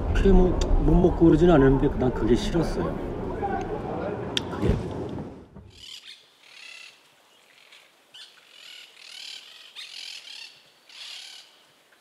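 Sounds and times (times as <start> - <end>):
birds high-pitched calls: 5.7 - 11.6.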